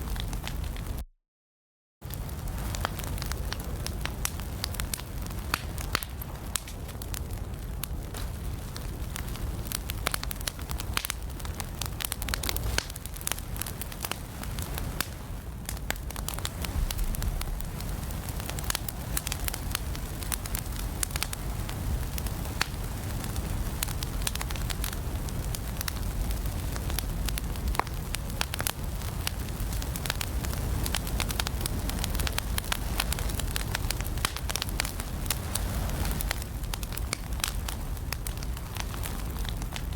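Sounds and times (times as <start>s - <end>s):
low rumble of flames: 0.0s - 1.0s, 2.0s - 39.9s
wood fire crackling and popping: 0.0s - 1.0s, 2.0s - 39.9s.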